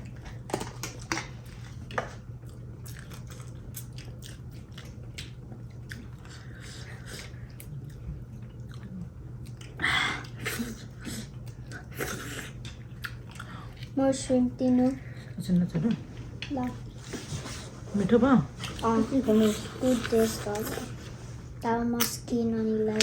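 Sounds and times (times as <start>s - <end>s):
people chewing and biting: 0.0s - 14.0s.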